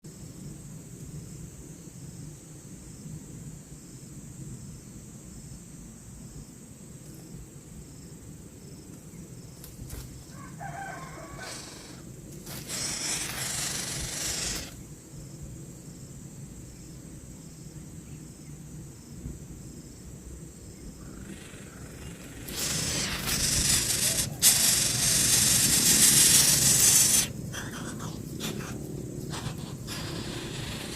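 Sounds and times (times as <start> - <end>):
rooster crowing: 10.3 - 12.0
loud hissing noise: 11.2 - 14.9, 20.8 - 30.9.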